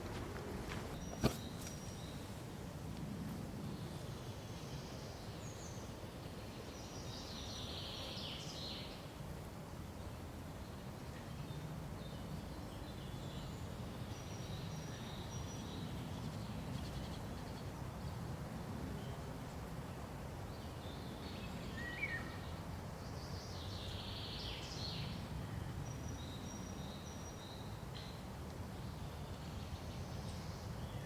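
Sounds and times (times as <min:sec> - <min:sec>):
forest birds chirping: 0:00.0 - 0:02.7, 0:03.7 - 0:09.1, 0:20.4 - 0:31.0
low background noise: 0:00.0 - 0:31.0.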